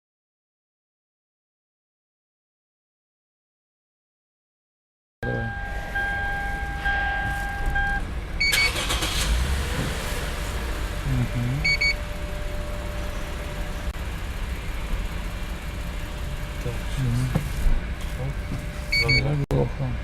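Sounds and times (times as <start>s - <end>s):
short electronic beeps: 5.2s - 8.8s, 11.6s - 12.0s, 18.9s - 19.4s
car electronic chime: 5.2s - 9.3s, 10.9s - 13.9s, 18.9s - 19.4s
car engine starting and idling: 5.2s - 20.0s.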